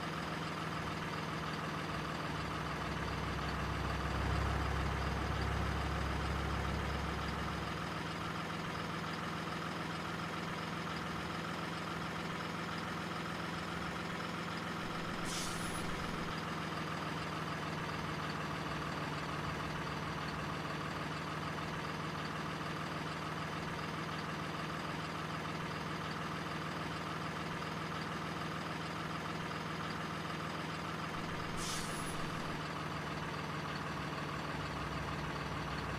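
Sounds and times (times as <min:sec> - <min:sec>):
truck engine idling: 0:00.1 - 0:35.9
high air hisses: 0:15.2 - 0:16.2, 0:31.4 - 0:32.6.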